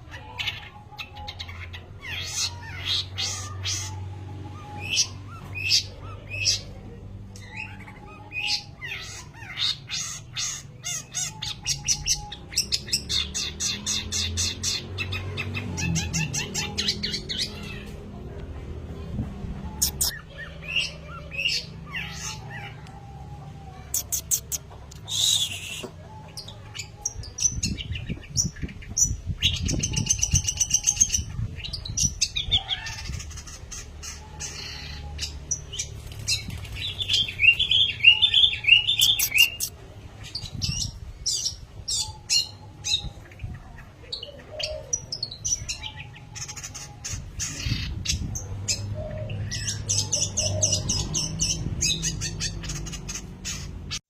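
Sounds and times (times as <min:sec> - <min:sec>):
bird singing chattering notes: 0:19.6 - 0:23.0, 0:23.8 - 0:54.0.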